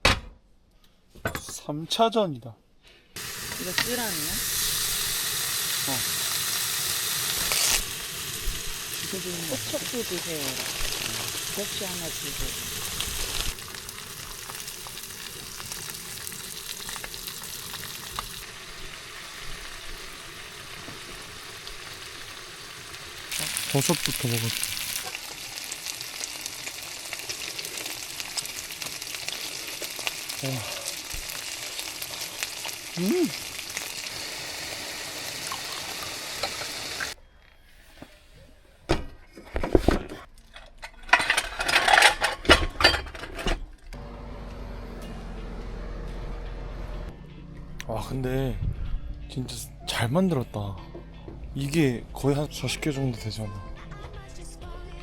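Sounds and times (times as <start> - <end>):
food sizzling with small pops: 3.2 - 37.2
utensils and dishes clattering: 39.5 - 43.7.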